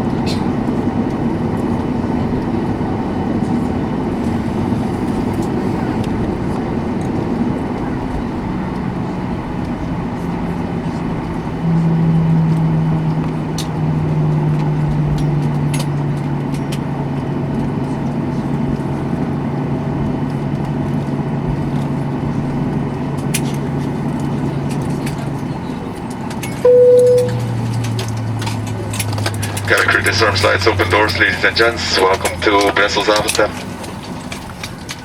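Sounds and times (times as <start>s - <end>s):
aircraft engine hum: 0.0s - 35.0s
short chime: 26.7s - 27.6s
low drone stepping in pitch: 26.7s - 28.0s.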